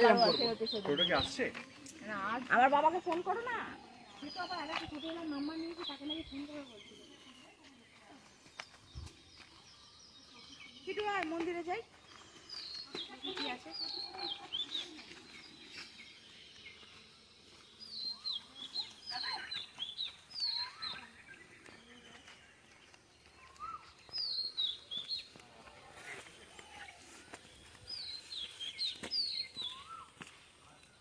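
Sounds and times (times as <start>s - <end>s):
quieter lower bird calls: 11.9s - 31.0s.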